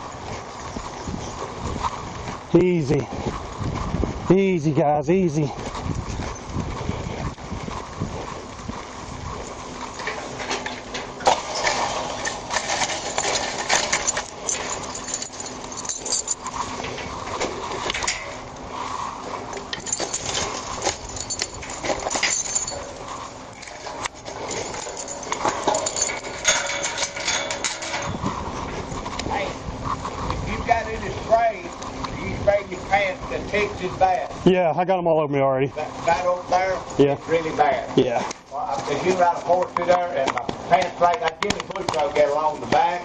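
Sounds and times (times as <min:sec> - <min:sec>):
gear clinking: 0:05.6 - 0:29.3.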